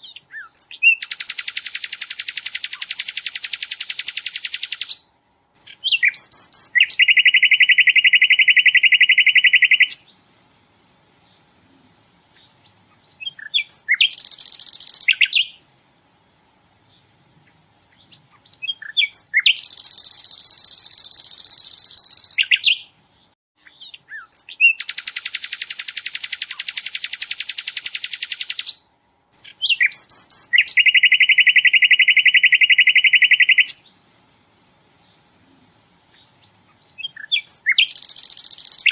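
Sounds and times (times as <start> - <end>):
bird singing rapid trills: 0.0 - 10.1, 12.4 - 15.7, 18.0 - 22.9, 23.6 - 33.9, 36.2 - 38.9
bird chips: 36.4 - 38.9.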